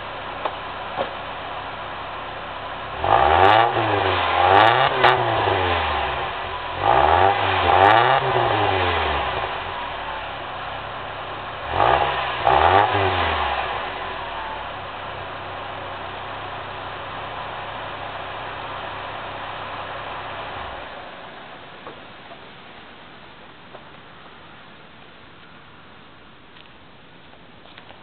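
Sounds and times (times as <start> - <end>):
car engine idling and revving: 0.0 - 22.3.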